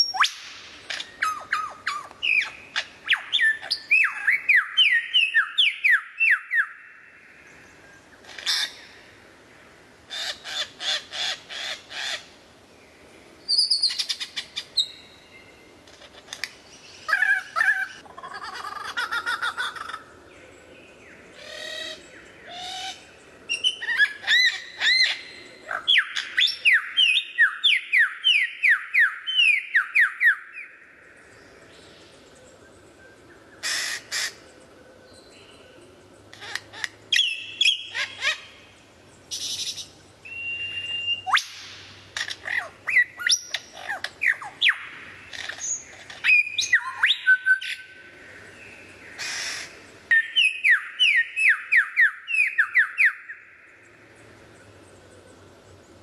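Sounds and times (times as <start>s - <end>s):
bird chirping and whistling: 0.0s - 6.8s, 13.5s - 15.0s, 37.2s - 38.4s, 39.4s - 41.8s, 42.9s - 44.9s, 45.6s - 47.8s, 50.1s - 53.3s.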